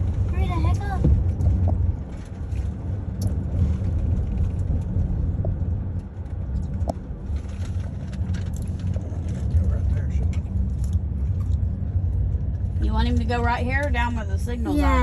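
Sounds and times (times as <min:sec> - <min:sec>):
car road noise rumble: 0:00.0 - 0:15.0.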